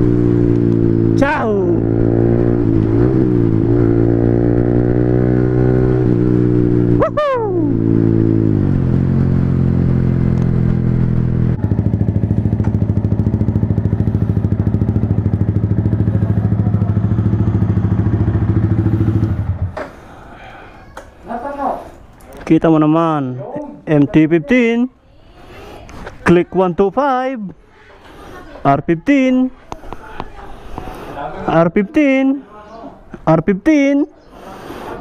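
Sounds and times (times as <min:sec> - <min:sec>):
engine revving: 0:00.0 - 0:19.8
motorcycle engine running: 0:00.0 - 0:19.8
motorcycle engine idling: 0:08.7 - 0:19.8.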